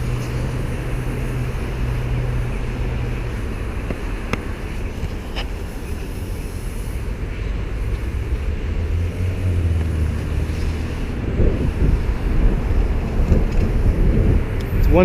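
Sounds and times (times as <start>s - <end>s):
low vehicle hum: 0.0s - 15.0s
passing traffic: 0.0s - 15.0s
wind on microphone: 6.8s - 15.0s.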